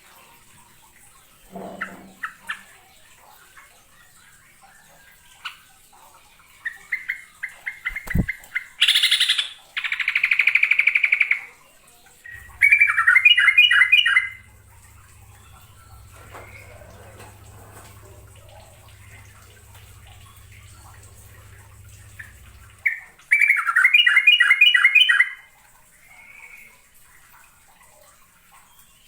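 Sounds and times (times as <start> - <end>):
bird singing bubbly notes: 6.6 - 11.2, 12.3 - 25.5
faint bird chirps: 12.3 - 25.2.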